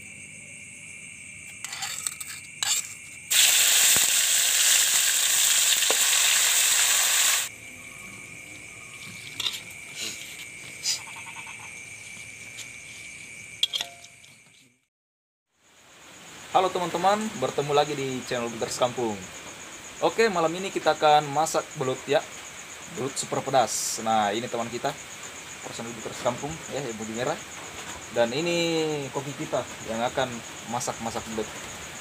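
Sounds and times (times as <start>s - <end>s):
crickets trilling: 0.0s - 14.9s, 15.5s - 32.0s
eel sizzling in hot oil: 3.3s - 7.5s.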